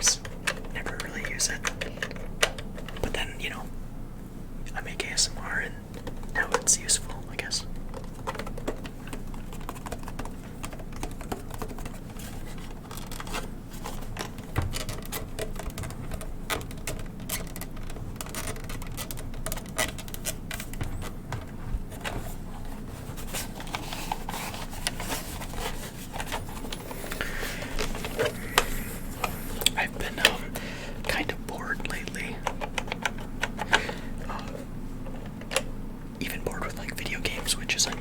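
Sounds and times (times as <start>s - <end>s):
fingers tapping on plastic casing: 7.8s - 12.1s, 27.2s - 35.7s.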